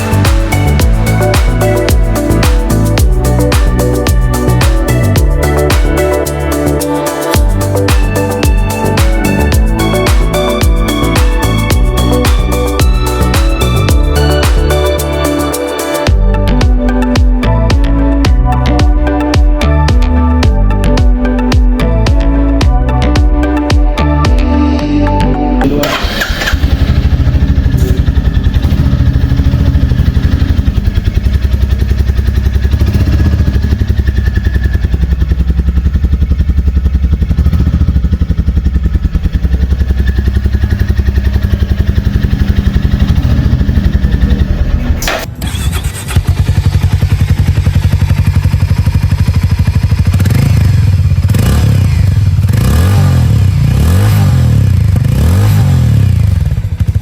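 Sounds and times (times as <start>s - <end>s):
motorcycle engine idling: 0.0s - 24.5s, 25.9s - 57.0s
motorcycle engine revving: 0.0s - 24.9s, 25.6s - 57.0s.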